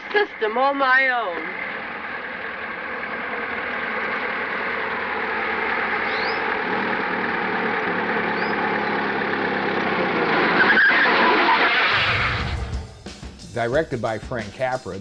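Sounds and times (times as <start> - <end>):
car engine running: 0.0 - 13.6
short sharp squeal: 10.4 - 12.8.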